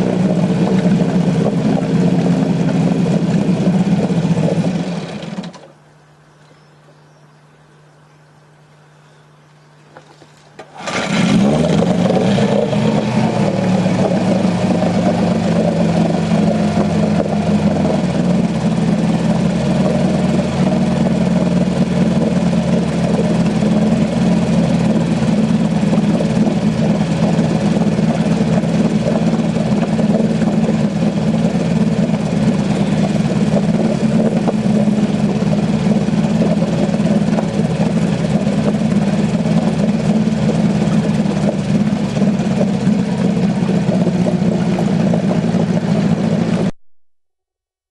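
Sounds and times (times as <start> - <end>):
boat engine idling: 0.0 - 46.8
boat engine cranking: 9.9 - 46.7.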